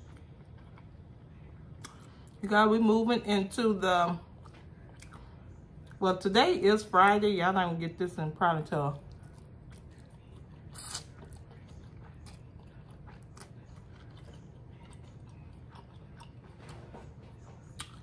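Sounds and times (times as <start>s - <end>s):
person chewing noodles: 0.0s - 2.4s, 4.3s - 6.0s, 9.0s - 18.0s.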